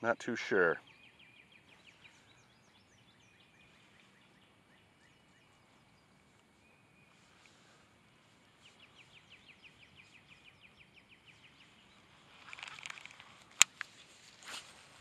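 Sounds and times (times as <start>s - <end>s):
songbird trilling chirps: 0.5s - 7.7s, 8.3s - 13.2s
rustling: 12.1s - 15.0s
sharp click: 12.5s - 13.9s.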